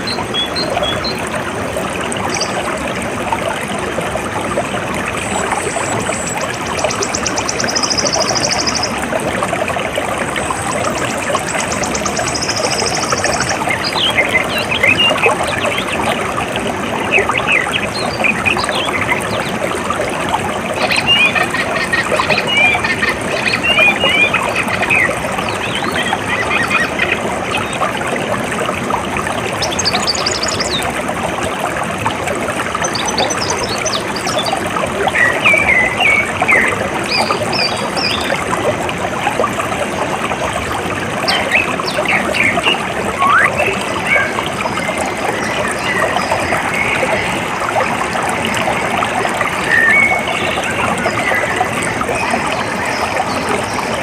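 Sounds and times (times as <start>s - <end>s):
birds chirping: 5.3s - 9.0s, 10.5s - 16.1s, 20.8s - 27.7s, 41.2s - 47.6s.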